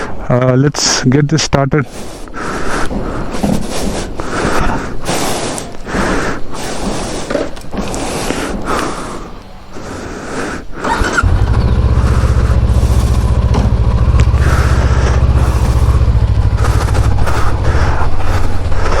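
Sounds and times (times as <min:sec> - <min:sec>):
motorcycle engine starting and idling: 0:10.8 - 0:19.0.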